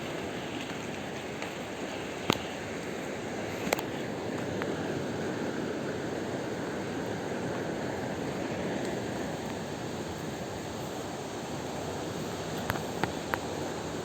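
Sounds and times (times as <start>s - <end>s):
rain: 0.0s - 14.0s
sea surf: 0.0s - 14.0s.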